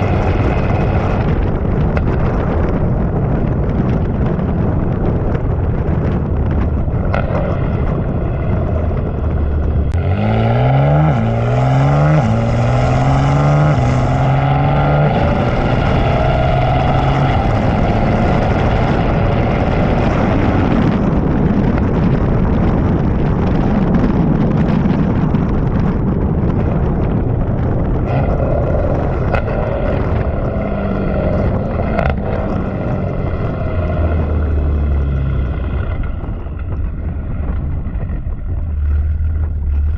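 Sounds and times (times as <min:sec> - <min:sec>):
wind and tyre noise: 0:00.0 - 0:39.9
car engine accelerating hard: 0:07.1 - 0:21.3.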